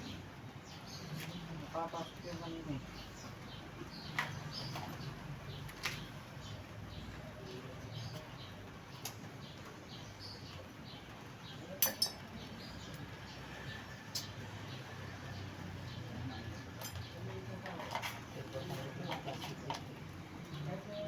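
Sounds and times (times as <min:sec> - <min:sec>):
metal tools clinking: 0:11.8 - 0:12.4, 0:16.8 - 0:18.3.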